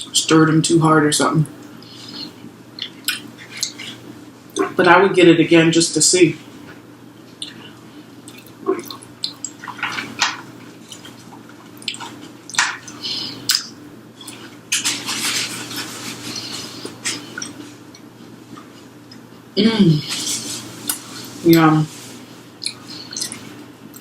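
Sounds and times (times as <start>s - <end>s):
wet chewing and mouth smacks: 2.1s - 4.7s, 7.3s - 19.3s, 22.6s - 24.0s.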